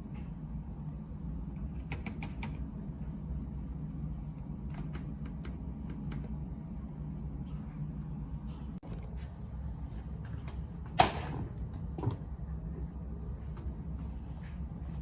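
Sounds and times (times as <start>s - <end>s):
washing machine humming: 0.0s - 15.0s.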